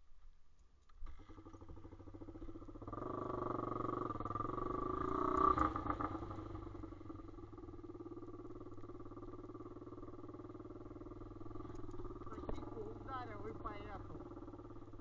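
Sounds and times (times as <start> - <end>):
pit bike engine revving: 1.0 - 15.0.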